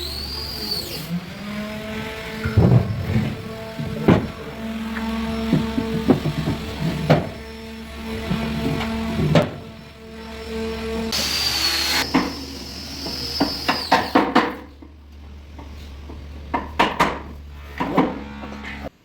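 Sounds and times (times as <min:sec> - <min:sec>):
power tool whirring: 0:00.0 - 0:14.4, 0:17.5 - 0:19.0
knocks of wood on wood: 0:02.4 - 0:07.4, 0:16.5 - 0:18.2.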